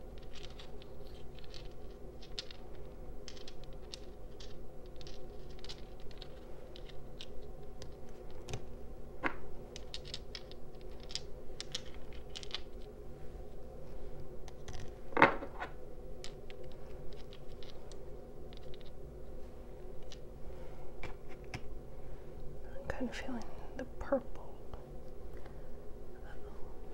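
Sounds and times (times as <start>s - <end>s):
faint steady hum: 0.0s - 26.9s
crystal stones clicking: 0.2s - 8.3s, 9.7s - 12.9s.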